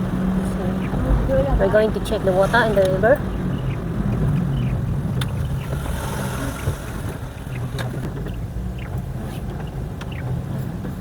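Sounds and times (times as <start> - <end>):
car engine rumble: 0.0 - 11.0
road noise: 0.0 - 11.0.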